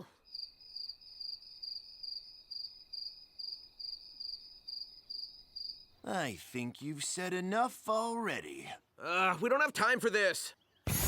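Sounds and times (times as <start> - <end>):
crickets chirping: 0.0 - 6.0.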